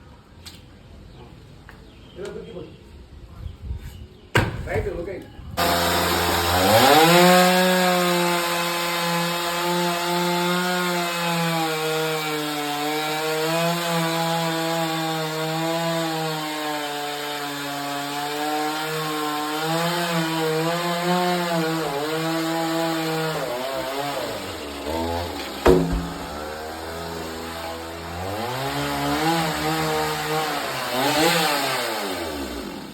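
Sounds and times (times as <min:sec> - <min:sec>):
chainsaw cutting wood: 0:05.6 - 0:32.9.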